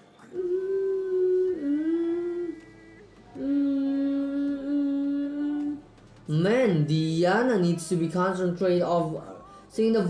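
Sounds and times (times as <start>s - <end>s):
woman singing long wordless notes: 0.0s - 6.0s.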